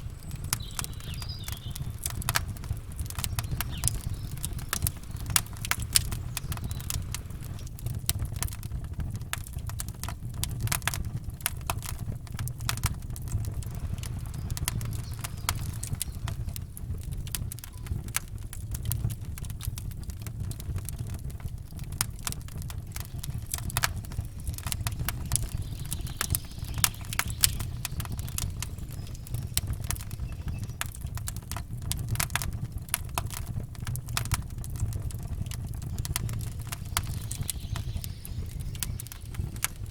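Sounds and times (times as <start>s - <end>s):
campfire crackling and popping: 0.0s - 39.9s
low rumble: 12.8s - 17.4s.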